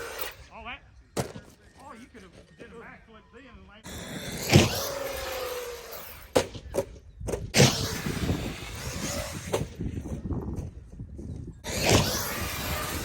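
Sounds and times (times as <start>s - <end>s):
rc car landing and tumbling: 0.0s - 0.4s, 3.9s - 10.8s, 11.6s - 13.0s
outdoor noise: 0.0s - 13.0s.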